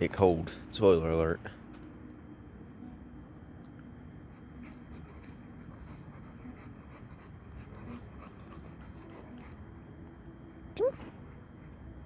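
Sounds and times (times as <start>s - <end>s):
dog panting and whimpering: 4.3s - 9.8s.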